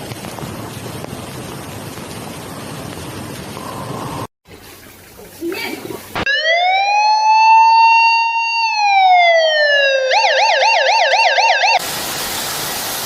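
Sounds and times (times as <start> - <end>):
electronic siren wailing: 6.2 - 11.8.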